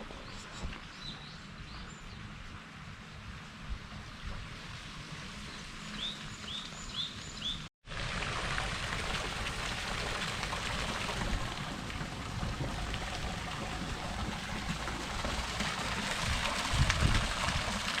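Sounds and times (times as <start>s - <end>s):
bird chirping: 5.8s - 7.7s.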